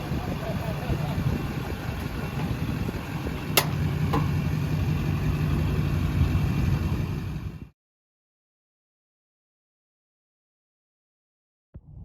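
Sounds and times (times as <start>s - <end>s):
diesel truck engine idling: 0.0s - 7.7s.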